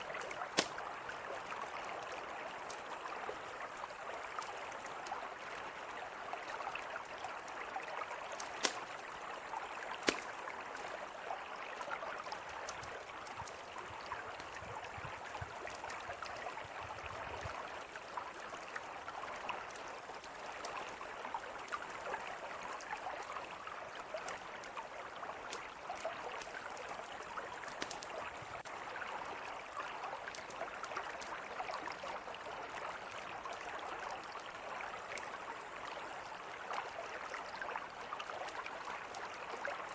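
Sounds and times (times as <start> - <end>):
river flowing: 0.0 - 39.9
campfire crackling and popping: 0.1 - 0.9, 8.3 - 11.1, 12.4 - 14.6, 25.5 - 28.4, 30.3 - 31.4.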